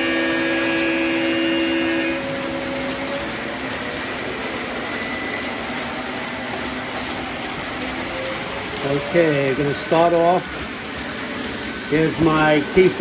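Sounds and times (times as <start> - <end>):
model train horn blast: 0.0 - 3.1
model train running on track: 0.0 - 13.0.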